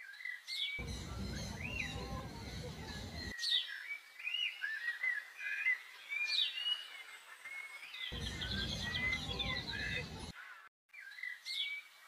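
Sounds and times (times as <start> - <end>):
small birds chirping: 0.1 - 12.0
low background rumble: 0.8 - 3.3, 8.2 - 10.3.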